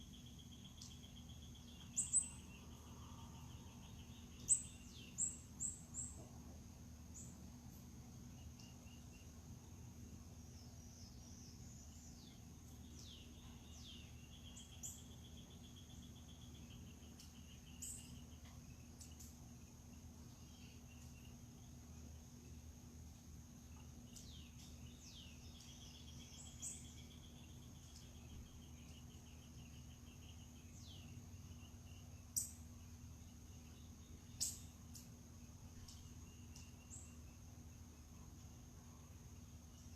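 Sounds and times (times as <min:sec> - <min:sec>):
bird trill: 0:00.0 - 0:06.3, 0:10.8 - 0:21.9, 0:24.0 - 0:37.6
birds chirping: 0:00.0 - 0:39.9
high insect whine: 0:00.0 - 0:39.9.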